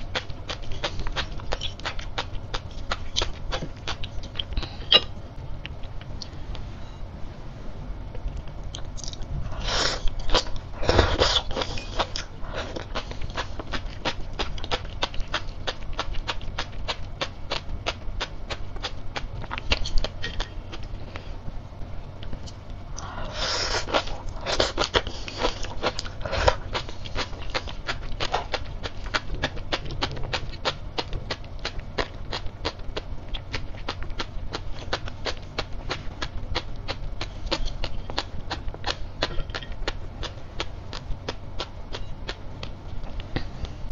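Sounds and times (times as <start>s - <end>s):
chewing crisp seaweed popping: 11.2s - 20.9s, 23.8s - 43.4s.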